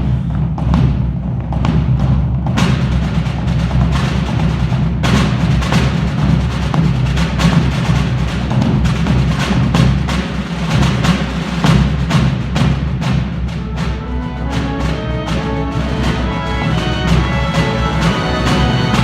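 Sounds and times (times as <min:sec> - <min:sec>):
drum and block strikes: 0:00.0 - 0:19.0
concert band playing: 0:12.8 - 0:19.0.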